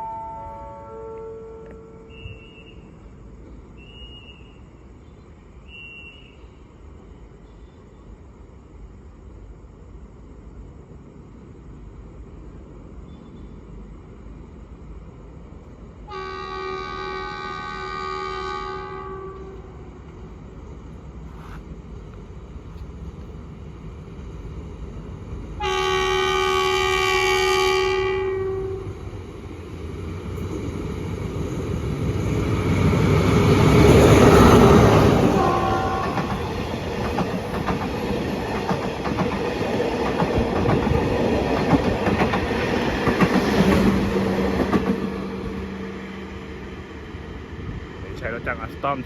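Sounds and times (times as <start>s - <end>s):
locomotive horn: 0.0s - 2.8s, 16.1s - 19.9s, 25.6s - 29.0s, 34.2s - 36.5s
locomotive passing: 17.2s - 49.0s
coaches clattering over rail joints: 33.7s - 45.1s.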